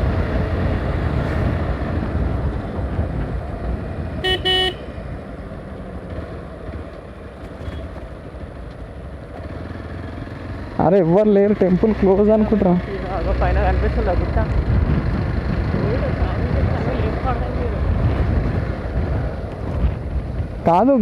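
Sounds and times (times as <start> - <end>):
wind rumble: 0.0 - 10.0, 11.9 - 21.0
motorcycle engine: 0.0 - 20.6
vehicle horn beeps: 4.2 - 5.0.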